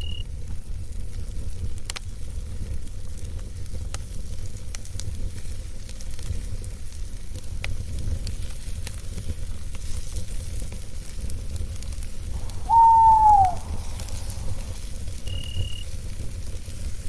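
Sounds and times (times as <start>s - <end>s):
campfire crackling: 0.0s - 17.0s
cricket chirp: 12.4s - 15.8s
owl hoot: 12.4s - 15.8s.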